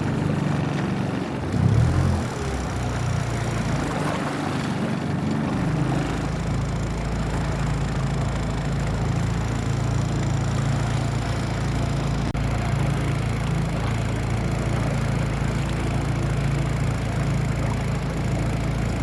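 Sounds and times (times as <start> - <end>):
hull and water noise: 0.0 - 19.0
outboard motor running: 0.0 - 19.0.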